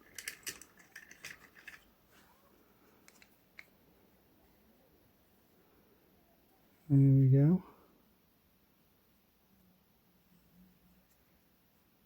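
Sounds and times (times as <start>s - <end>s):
plastic capsules clicking: 0.0s - 1.9s, 3.0s - 3.7s.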